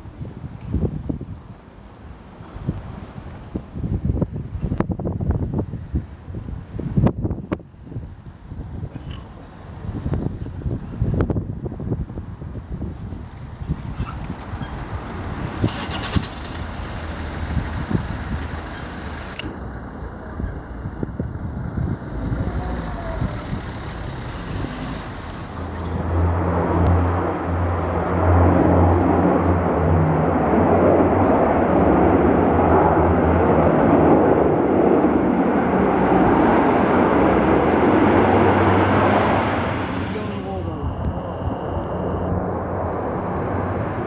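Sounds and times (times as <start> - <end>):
propeller plane droning overhead: 11.5 - 44.0.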